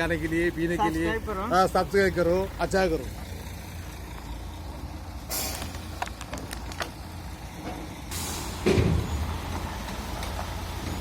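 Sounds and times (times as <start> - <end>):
heavy vehicle engine running: 0.0 - 11.0
short hisses: 5.3 - 5.7.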